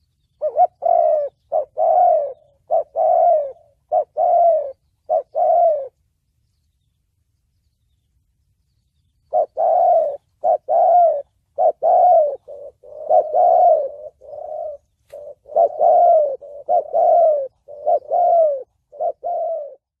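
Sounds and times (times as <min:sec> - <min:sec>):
dove cooing: 0:00.0 - 0:06.0, 0:09.3 - 0:20.0.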